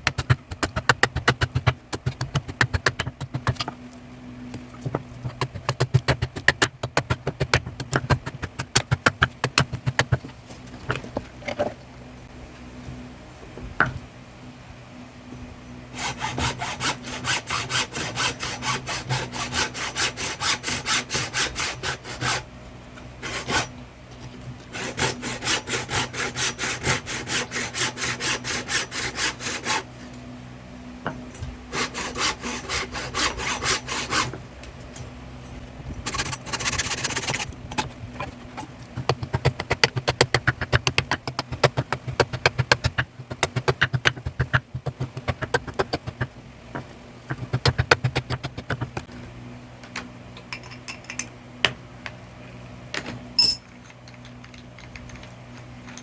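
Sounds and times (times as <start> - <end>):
steady low hum: 0.0 - 56.0
hand tool scraping: 53.4 - 53.6.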